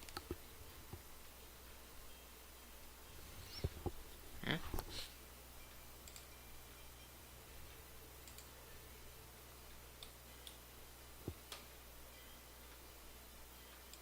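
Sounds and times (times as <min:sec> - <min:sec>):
computer mouse clicks: 0:00.0 - 0:01.0, 0:06.0 - 0:06.3, 0:08.2 - 0:08.5, 0:13.7 - 0:14.0
low steady hum: 0:00.0 - 0:14.0.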